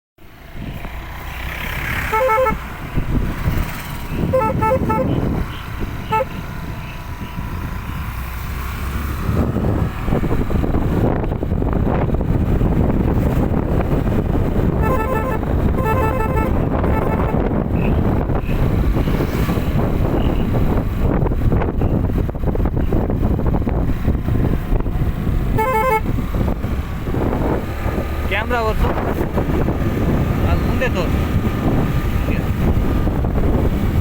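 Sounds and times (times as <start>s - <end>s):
wind and road noise: 0.2s - 34.0s
scooter horn short beeps: 2.1s - 2.6s, 4.2s - 6.4s, 14.8s - 17.4s, 25.6s - 26.1s.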